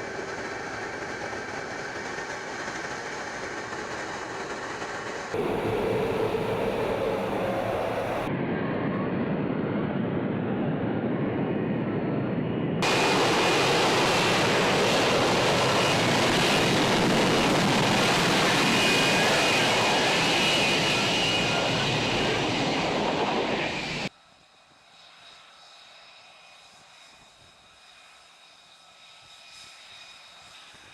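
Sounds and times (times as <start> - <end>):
jet engine roaring and whining: 0.0 - 24.1.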